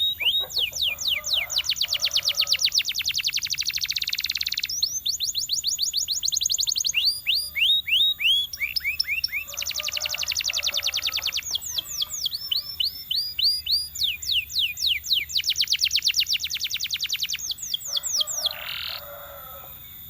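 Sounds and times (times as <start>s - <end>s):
canary singing: 0.0s - 20.0s.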